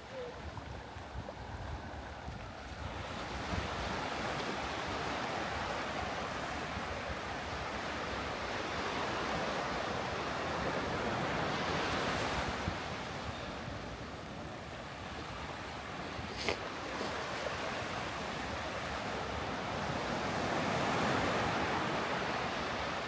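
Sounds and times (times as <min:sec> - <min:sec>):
wind rumbling on microphone: 0:00.0 - 0:08.6
waves washing on sandy beach: 0:00.0 - 0:23.0.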